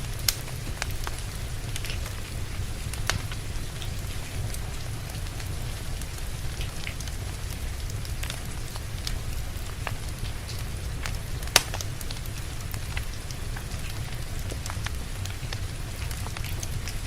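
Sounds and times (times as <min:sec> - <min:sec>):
steady rain: 0:00.0 - 0:17.0
wood fire crackling: 0:00.0 - 0:17.0.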